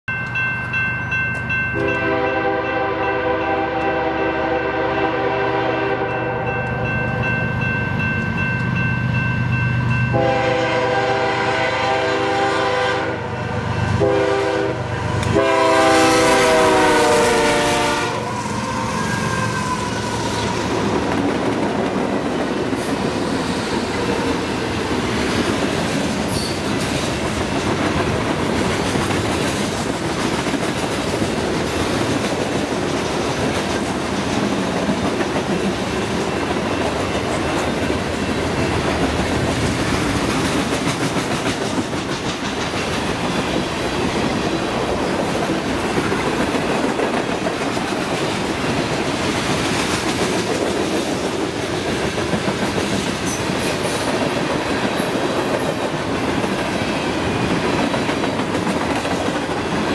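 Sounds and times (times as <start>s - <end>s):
diesel locomotives passing: 0.1s - 59.9s
train air horn: 1.8s - 6.6s, 10.1s - 20.8s
train wheels clattering on rails: 19.8s - 59.9s.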